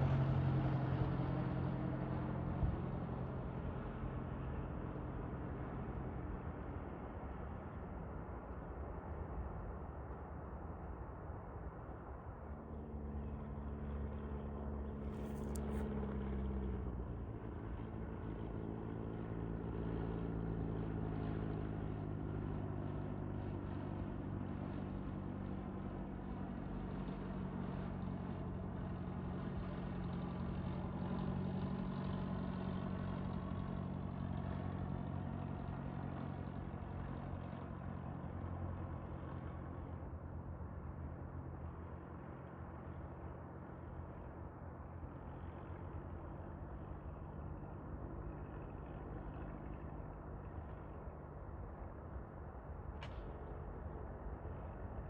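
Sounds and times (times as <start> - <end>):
engine droning: 0.0 - 10.4, 11.2 - 55.0.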